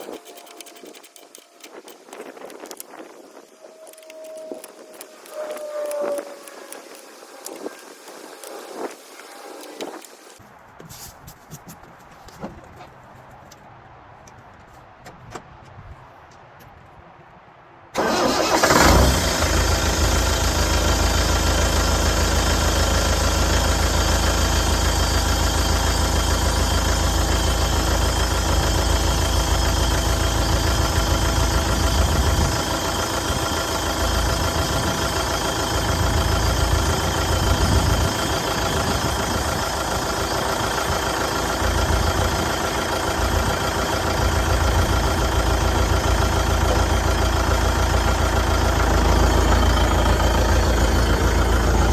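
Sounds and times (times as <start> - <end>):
diesel engine idling: 18.0 - 51.9.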